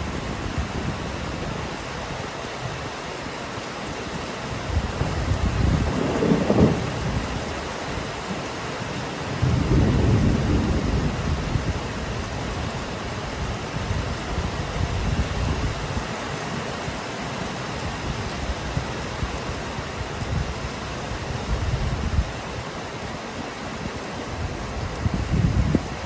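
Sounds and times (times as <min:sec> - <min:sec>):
steady rain: 0:00.0 - 0:26.0
thunder rumbling: 0:04.8 - 0:07.5, 0:09.3 - 0:15.6.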